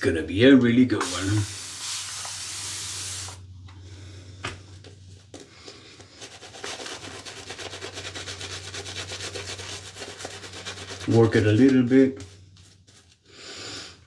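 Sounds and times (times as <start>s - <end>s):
shaving brush rubbing lather: 1.0s - 3.4s
steady hiss: 1.0s - 3.4s.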